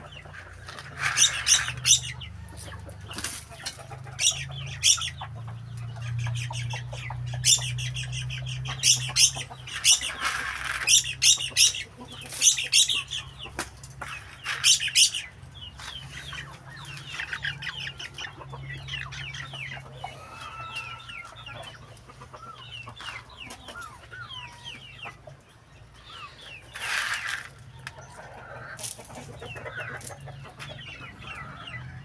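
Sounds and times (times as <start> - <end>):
chickens clucking and squawking: 0.0 - 32.0
short chirping calls: 6.2 - 13.5, 14.2 - 18.2.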